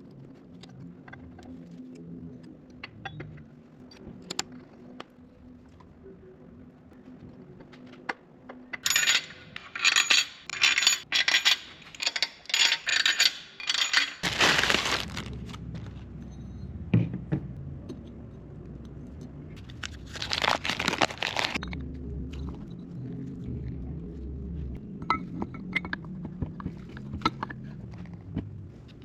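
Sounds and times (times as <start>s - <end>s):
metal engine parts clinking: 8.6s - 15.3s
low steady rumble: 14.3s - 29.0s.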